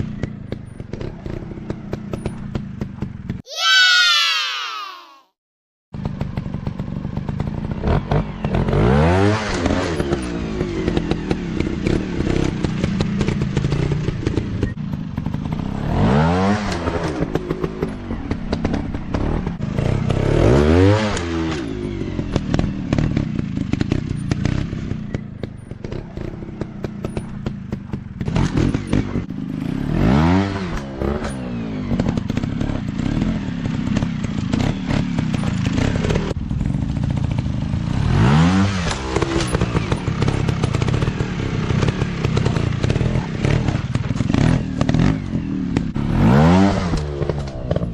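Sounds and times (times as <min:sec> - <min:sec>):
dirt bike engines revving: 0:06.0 - 0:47.9
bikes clattering over rough ground: 0:38.9 - 0:46.0.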